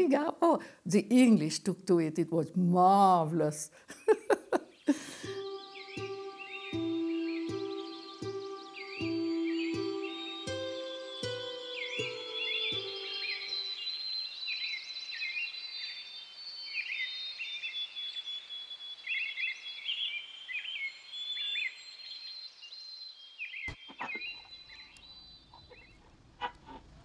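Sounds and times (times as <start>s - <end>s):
small birds chirping: 3.9s - 27.0s
soft music: 5.0s - 13.8s.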